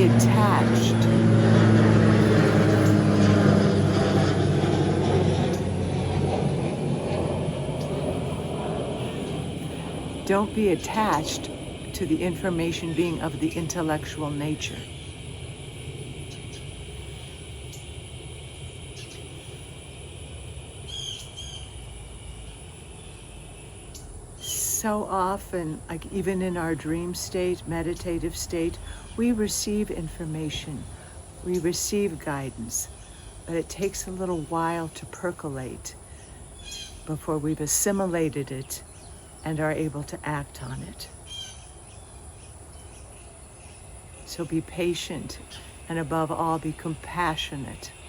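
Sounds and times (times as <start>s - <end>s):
low rumble: 0.0s - 18.7s
distant engine drone: 0.0s - 48.0s.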